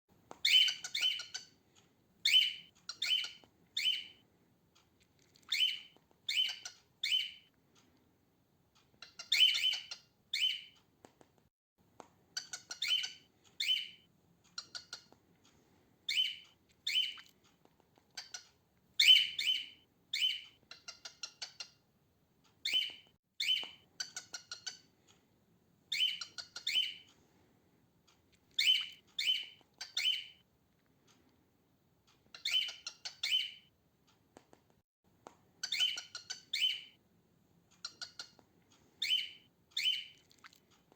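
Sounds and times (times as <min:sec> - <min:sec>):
cockatiel chirping: 0:00.4 - 0:01.6, 0:02.2 - 0:04.2, 0:05.4 - 0:07.5, 0:08.9 - 0:10.8, 0:12.4 - 0:15.2, 0:16.1 - 0:17.4, 0:18.1 - 0:21.8, 0:22.6 - 0:24.9, 0:25.9 - 0:27.1, 0:28.5 - 0:30.4, 0:32.2 - 0:33.7, 0:35.6 - 0:37.0, 0:37.8 - 0:38.4, 0:39.0 - 0:40.3.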